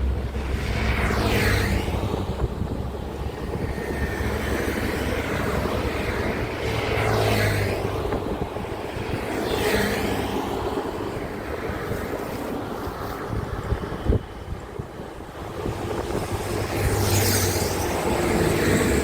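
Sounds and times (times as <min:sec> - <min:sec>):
truck engines running: 0:00.0 - 0:11.4, 0:15.2 - 0:19.0
vehicles passing by: 0:00.0 - 0:19.0.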